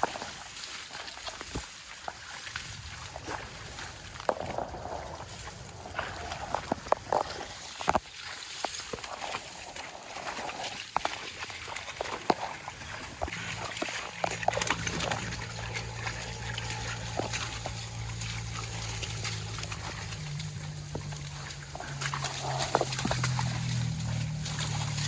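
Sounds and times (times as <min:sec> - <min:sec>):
water sloshing and splashing: 0:00.0 - 0:25.0
steady low hum: 0:12.7 - 0:25.0.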